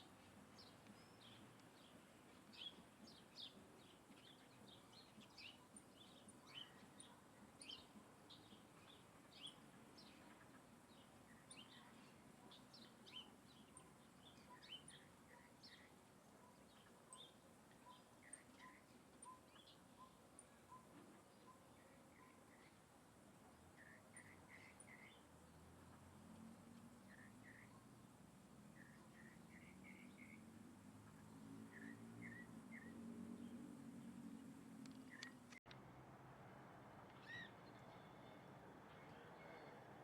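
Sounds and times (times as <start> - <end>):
birds chirping: 0.0 - 35.6, 37.2 - 39.8
faint high ticks: 0.8 - 2.4, 34.8 - 35.8.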